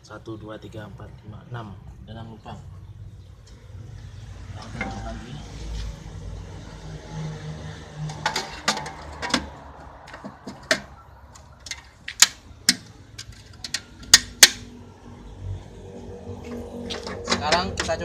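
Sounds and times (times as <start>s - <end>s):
metal parts and tools clicking: 10.1s - 14.6s.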